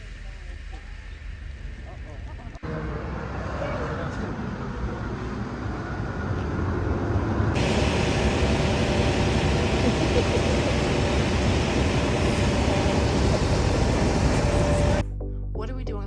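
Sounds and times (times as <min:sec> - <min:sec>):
vehicle running noise: 0:02.5 - 0:15.0
faint voices: 0:07.6 - 0:15.0.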